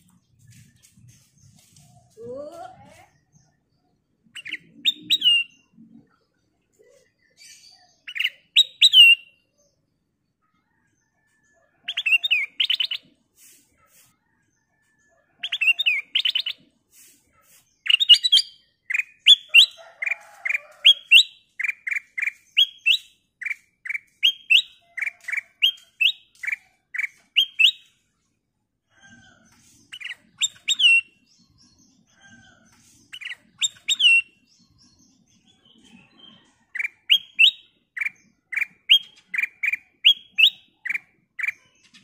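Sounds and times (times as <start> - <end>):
bird singing whistled notes: 4.4 - 5.6, 8.0 - 9.4, 20.9 - 27.9, 30.0 - 31.2, 33.2 - 34.4, 36.2 - 41.6.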